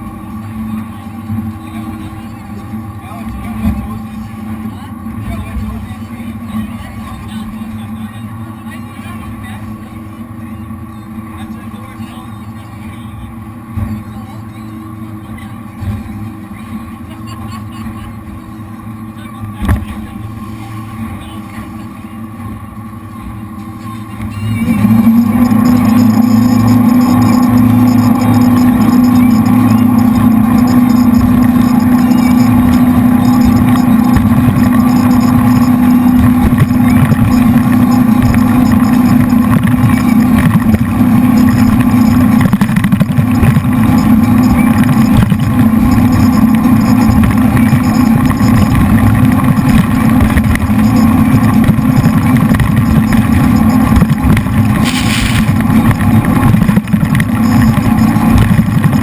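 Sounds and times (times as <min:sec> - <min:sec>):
boat engines droning: 0:00.0 - 0:59.0
short hissing burst: 0:54.8 - 0:55.5.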